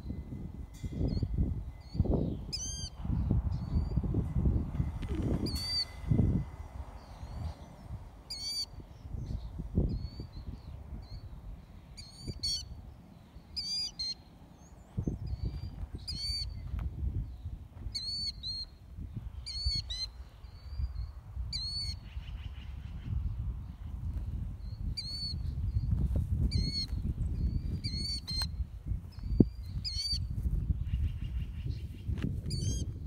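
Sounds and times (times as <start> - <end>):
wind on the microphone: 0.0 - 13.9, 14.6 - 33.0
bird calling: 7.0 - 16.6.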